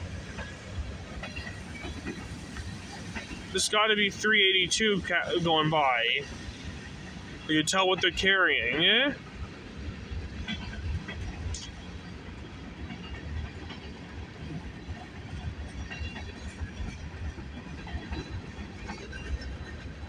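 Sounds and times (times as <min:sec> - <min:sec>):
freight train wheels rumbling: 0:00.0 - 0:20.0
faint clicks: 0:10.5 - 0:11.9.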